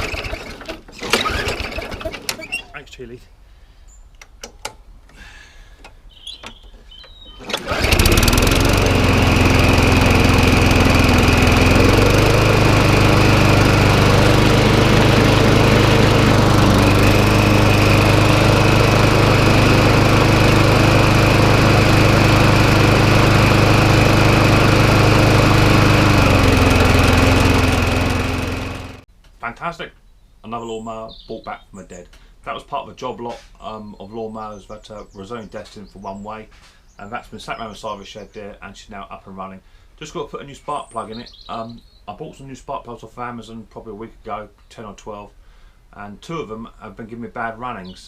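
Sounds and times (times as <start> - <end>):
lawnmower engine running: 0.0 - 2.8, 7.3 - 29.1.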